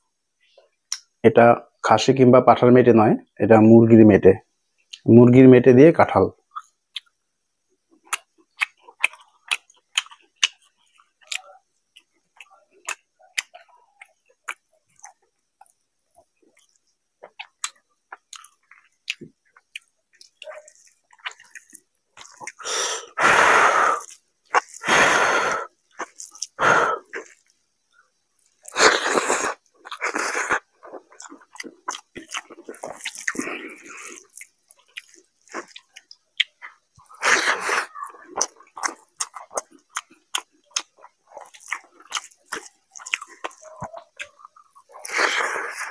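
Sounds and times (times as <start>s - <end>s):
wet chewing and lip-smacking: 7.9s - 22.6s, 24.0s - 25.0s, 25.8s - 45.9s.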